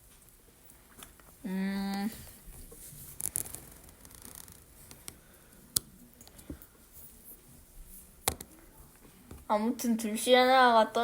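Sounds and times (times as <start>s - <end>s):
faint scratching: 2.0s - 5.4s.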